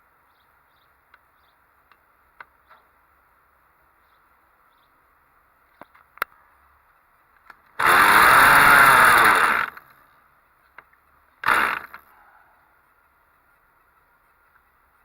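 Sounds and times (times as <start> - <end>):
model engine firing: 7.8 - 9.9, 11.4 - 12.1.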